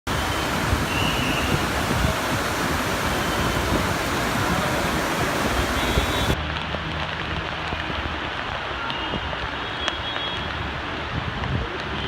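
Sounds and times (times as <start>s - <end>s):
wind buffeting microphone: 0.1s - 6.4s
heavy rain hissing: 0.1s - 12.0s.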